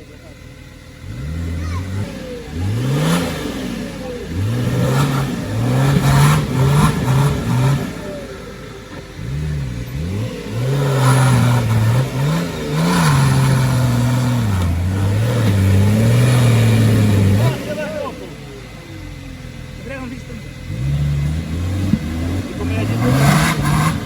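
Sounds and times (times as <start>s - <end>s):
engine revving: 0.0s - 24.0s.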